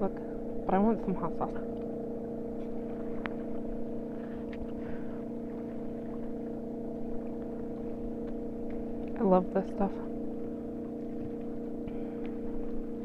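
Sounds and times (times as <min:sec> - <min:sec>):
speedboat engine drone: 0:00.0 - 0:13.0.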